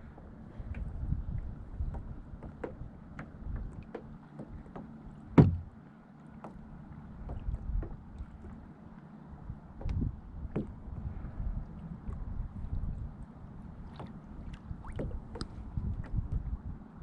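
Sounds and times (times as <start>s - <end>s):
small knocks and clicks: 1.8s - 5.7s, 15.0s - 16.2s.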